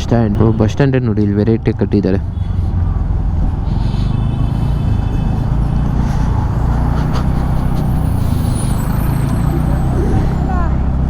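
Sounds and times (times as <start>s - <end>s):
motorcycle engine rumble: 2.2s - 11.0s
rushing air: 2.6s - 10.5s.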